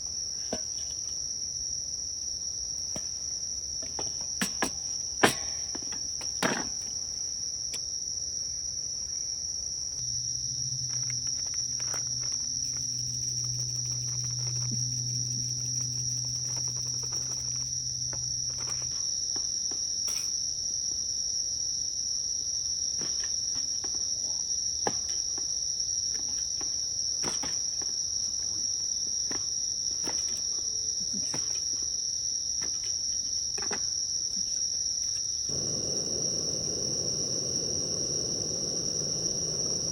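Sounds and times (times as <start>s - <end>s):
insects chirring: 0.0s - 39.9s
low hum: 10.0s - 17.1s, 35.5s - 39.9s.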